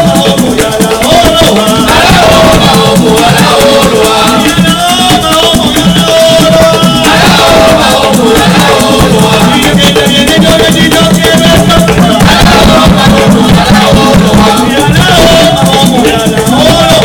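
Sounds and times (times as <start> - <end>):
maracas shaking: 0.0 - 17.0.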